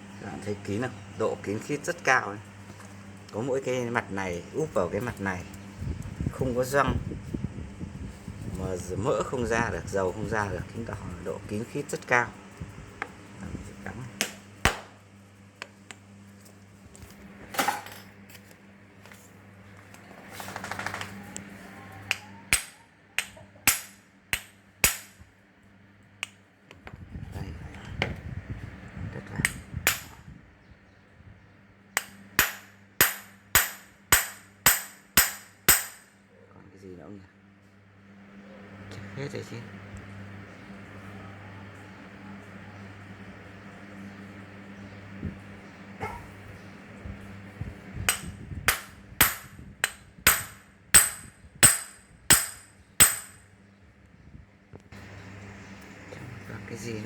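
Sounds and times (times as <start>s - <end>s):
hammer striking metal: 22.5s - 25.2s, 29.9s - 30.2s, 32.0s - 36.1s, 48.1s - 53.4s.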